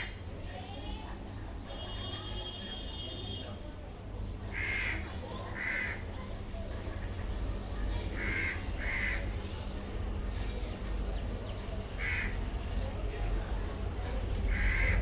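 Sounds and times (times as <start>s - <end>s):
bird harsh calls: 4.4s - 6.2s, 8.2s - 9.4s, 11.9s - 12.6s, 14.4s - 15.0s.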